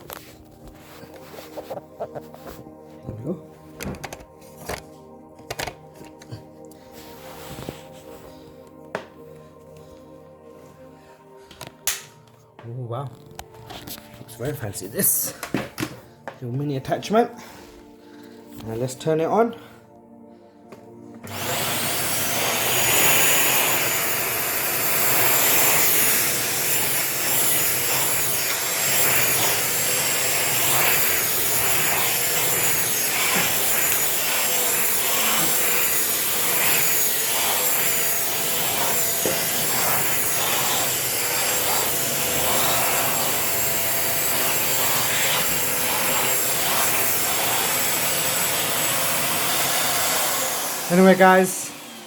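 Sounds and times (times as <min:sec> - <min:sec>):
vacuum cleaner running: 0:20.7 - 0:52.0.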